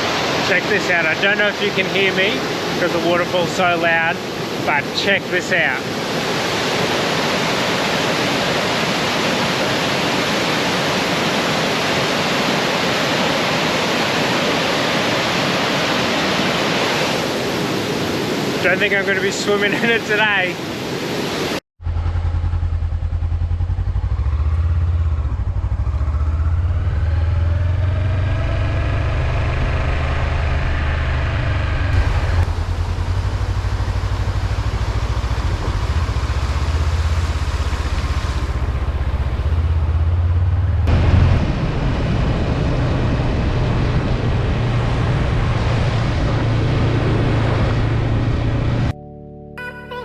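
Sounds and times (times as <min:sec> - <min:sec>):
motorcycle engine accelerating: 0:21.8 - 0:48.9.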